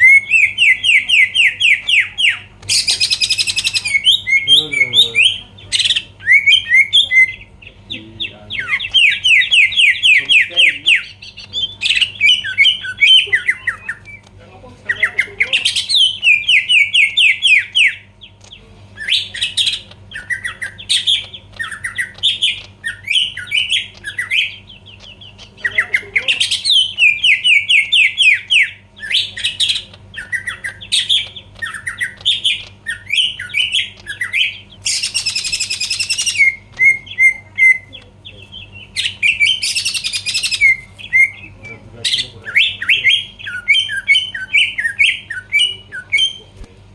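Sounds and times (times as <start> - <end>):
bird singing whistled notes: 30.2 - 37.9.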